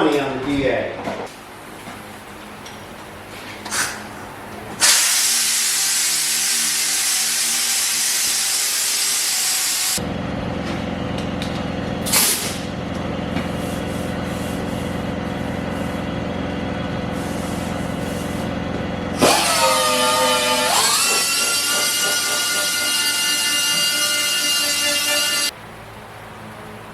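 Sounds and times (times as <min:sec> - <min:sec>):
sander running on car bodywork: 0:04.9 - 0:11.9, 0:17.0 - 0:25.5.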